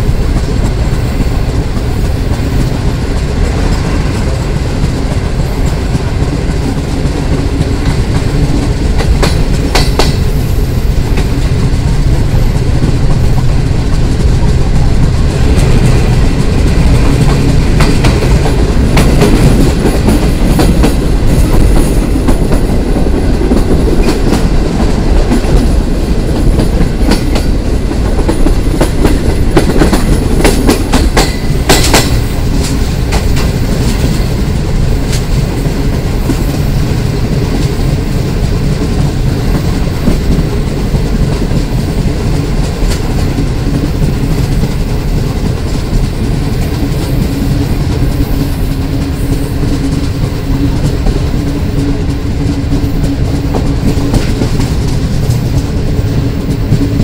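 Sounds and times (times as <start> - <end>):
train rumbling: 0.0 - 57.0
wheels clacking over rail joints: 0.0 - 57.0.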